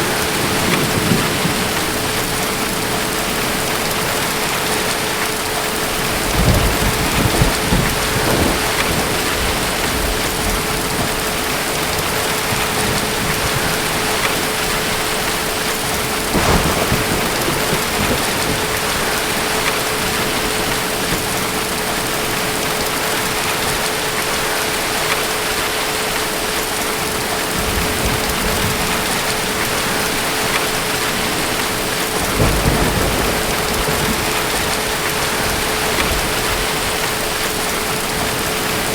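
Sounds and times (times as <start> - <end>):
thunder rumbling: 0.0 - 23.9, 26.6 - 38.9
heavy rain: 0.0 - 38.9.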